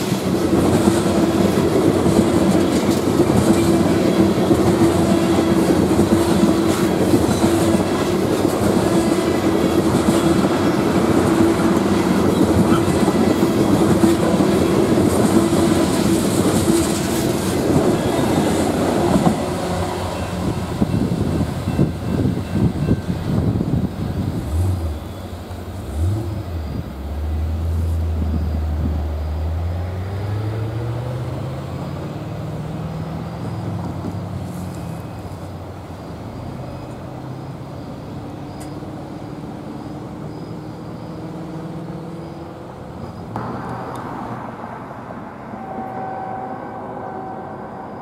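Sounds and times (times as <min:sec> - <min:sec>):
freight train cars clattering: 0:00.0 - 0:28.8.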